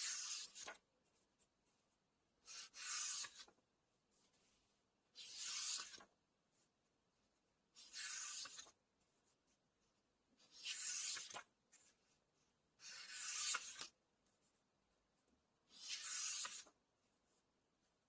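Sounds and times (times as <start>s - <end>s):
book pages turning: 0.0s - 0.8s, 2.5s - 3.6s, 5.2s - 6.1s, 7.8s - 8.8s, 10.5s - 12.0s, 12.9s - 14.0s, 15.7s - 16.8s.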